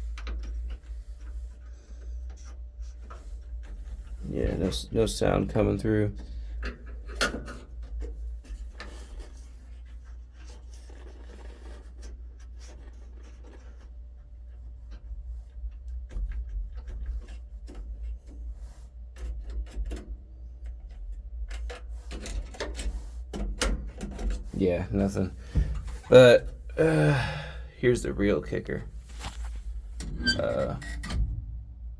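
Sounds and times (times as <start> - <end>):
low rumble: 27.8 - 31.9.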